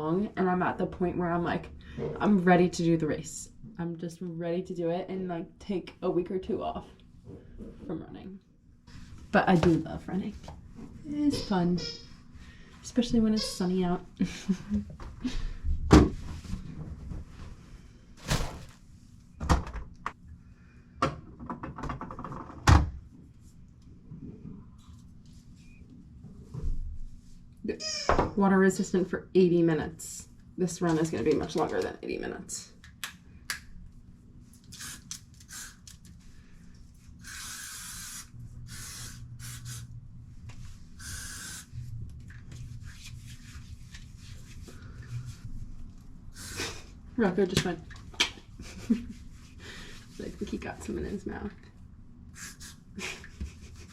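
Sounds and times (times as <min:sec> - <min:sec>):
aerosol spray hissing: 0:34.8 - 0:35.8, 0:37.2 - 0:39.9, 0:41.0 - 0:41.7.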